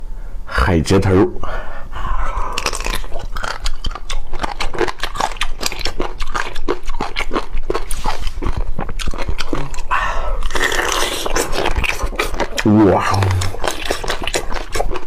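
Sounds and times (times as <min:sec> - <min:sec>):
person chewing crunchy food: 0:02.3 - 0:15.0.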